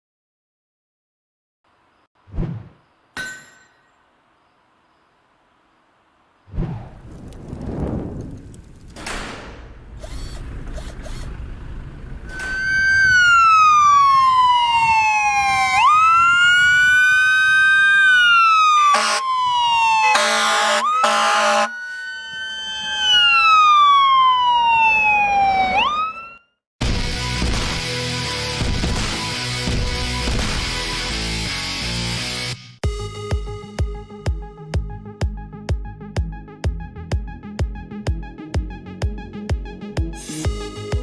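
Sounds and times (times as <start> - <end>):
low vehicle rumble: 6.1 - 14.5
fire truck siren wailing: 12.2 - 26.6
short horn blasts: 18.9 - 19.3, 20.1 - 21.8.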